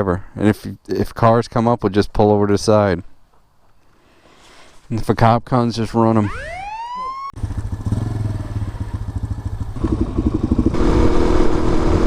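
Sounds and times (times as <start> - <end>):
motorcycle engine revving: 7.4 - 12.0.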